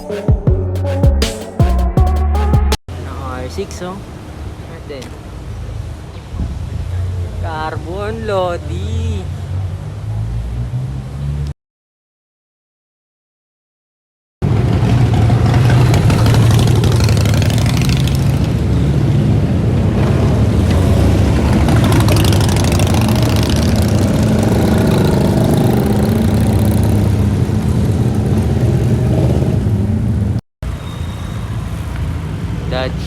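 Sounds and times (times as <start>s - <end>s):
car engine and exhaust running: 20.0s - 29.7s.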